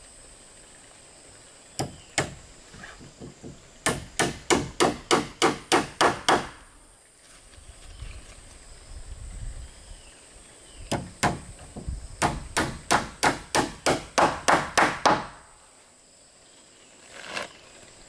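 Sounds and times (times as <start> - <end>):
tool striking wood: 1.8 - 2.4, 3.0 - 6.6, 10.9 - 15.5.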